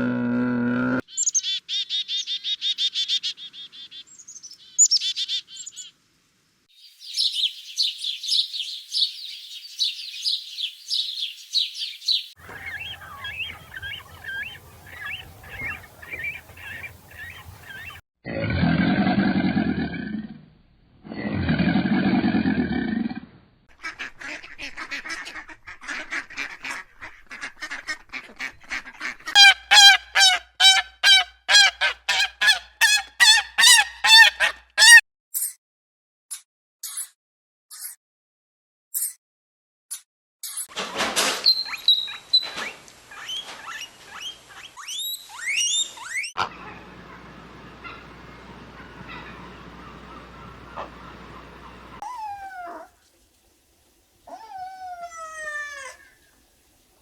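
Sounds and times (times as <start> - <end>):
bird chirping and twittering: 1.1 - 5.9, 6.8 - 18.0, 41.4 - 52.4
loud animal calls: 12.4 - 18.0, 29.3 - 35.0, 45.4 - 52.9.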